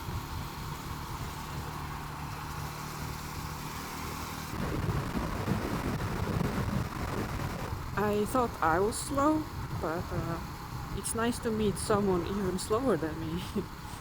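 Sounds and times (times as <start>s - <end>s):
motorcycle engine running: 0.0s - 14.0s
wind noise on microphone: 4.4s - 13.0s.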